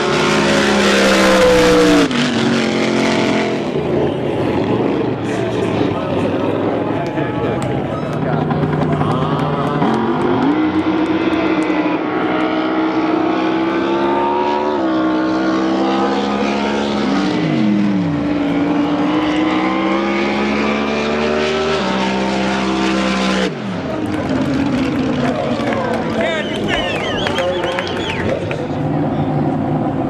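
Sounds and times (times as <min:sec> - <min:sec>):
boat engines running: 0:00.0 - 0:11.9, 0:23.8 - 0:30.0.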